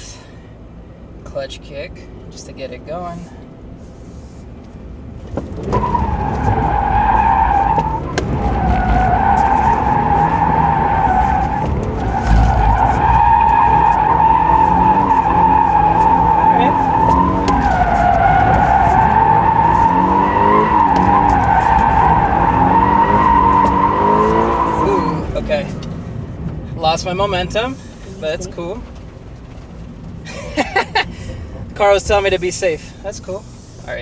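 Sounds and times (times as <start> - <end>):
car engine at high revs: 0.0 - 34.0
tyres squealing: 5.6 - 29.0.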